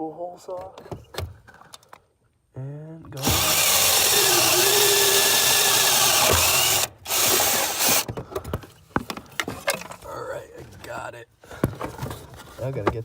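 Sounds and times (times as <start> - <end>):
electric drill grinding through steel: 3.2 - 8.1.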